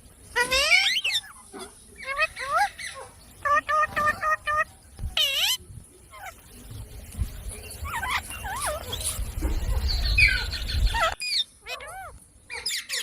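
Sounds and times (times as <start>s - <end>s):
parakeets chirping: 0.0s - 13.0s.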